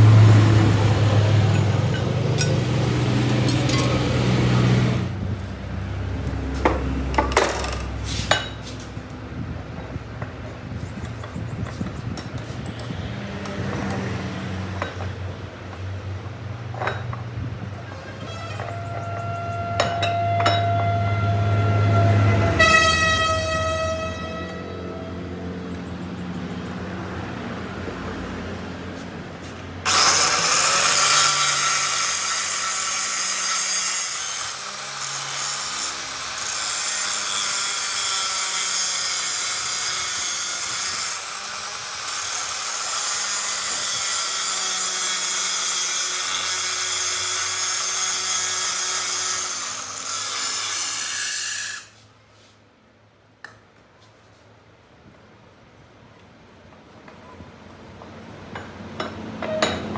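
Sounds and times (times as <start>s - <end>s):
power tool hissing on metal: 29.9s - 52.0s.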